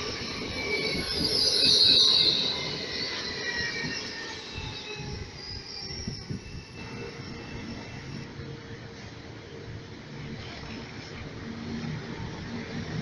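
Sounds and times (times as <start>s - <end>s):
train wheel and brake squeal: 0.0s - 9.6s.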